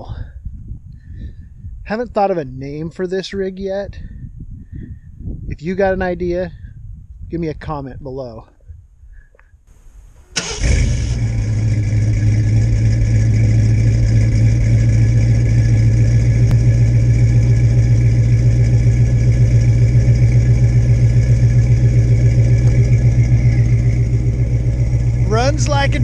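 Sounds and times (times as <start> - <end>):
engine idling at exhaust: 9.7 - 26.0.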